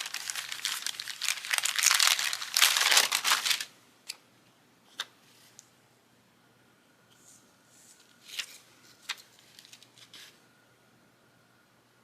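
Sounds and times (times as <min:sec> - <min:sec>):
sticker sheets crinkling: 0:00.0 - 0:03.7, 0:08.2 - 0:10.4.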